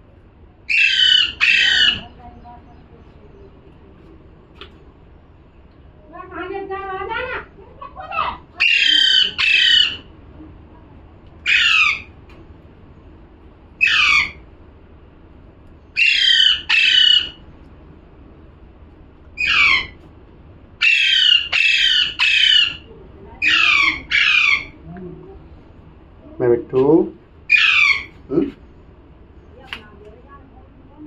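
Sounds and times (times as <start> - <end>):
parrot squawking: 0.7 - 2.2, 7.1 - 10.1, 11.4 - 12.1, 13.8 - 14.4, 16.0 - 17.4, 19.4 - 20.0, 20.8 - 24.8, 27.5 - 28.5.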